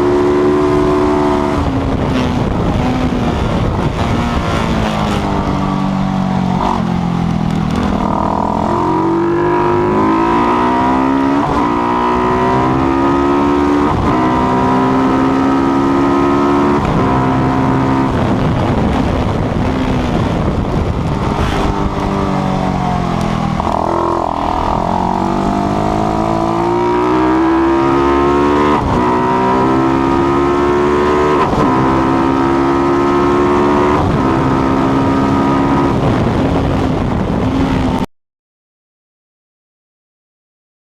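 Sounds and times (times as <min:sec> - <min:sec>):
race engine accelerating through gears: 0:00.0 - 0:37.8.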